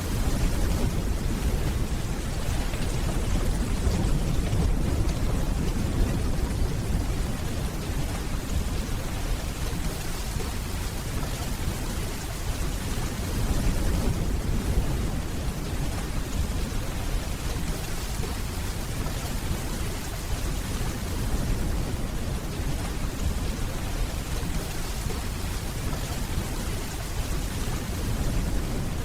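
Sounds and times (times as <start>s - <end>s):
distant thunder rumble: 0.0s - 12.0s
rain hissing on hard surfaces: 0.0s - 29.0s.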